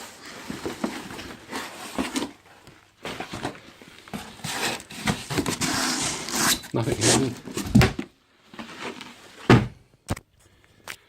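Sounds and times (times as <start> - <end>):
plastic packaging rustling and crinkling: 0.0 - 9.4.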